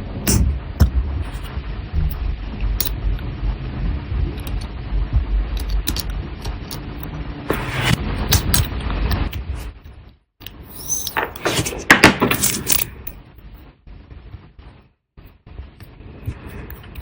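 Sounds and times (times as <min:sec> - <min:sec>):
low rumble: 0:00.0 - 0:10.2
metal tools clicking on watch parts: 0:12.4 - 0:13.2.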